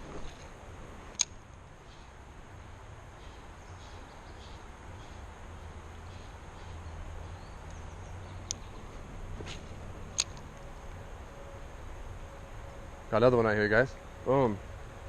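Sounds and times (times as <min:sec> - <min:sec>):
sharp click: 0:01.1 - 0:01.4, 0:10.1 - 0:10.7.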